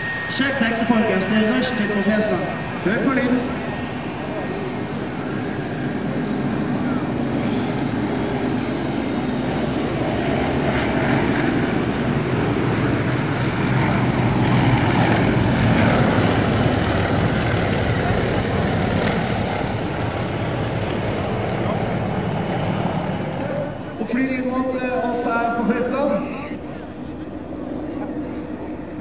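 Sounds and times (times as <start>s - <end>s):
propeller planes passing: 0.0s - 29.0s.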